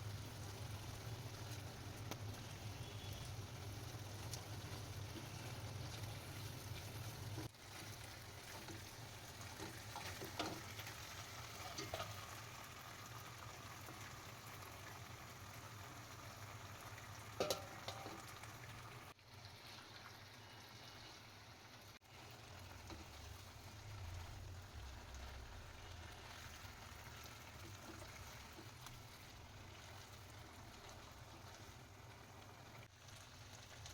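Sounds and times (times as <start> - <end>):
food sizzling in oil: 0.0 - 33.9
utensil clinking against pan: 17.4 - 18.3.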